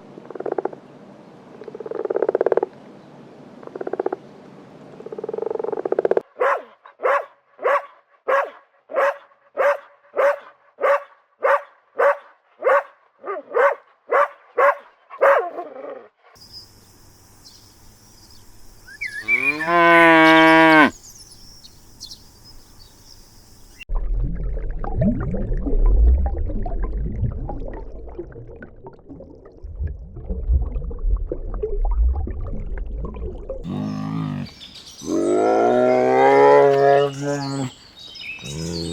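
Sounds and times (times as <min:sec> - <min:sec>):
cow mooing: 0:19.2 - 0:21.0, 0:38.4 - 0:38.9
rough low rumbling: 0:23.9 - 0:34.2.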